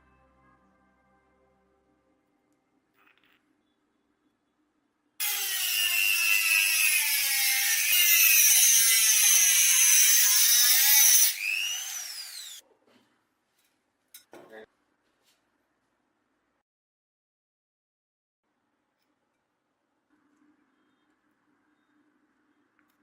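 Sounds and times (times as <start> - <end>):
electric power tool motor: 5.2 - 12.6.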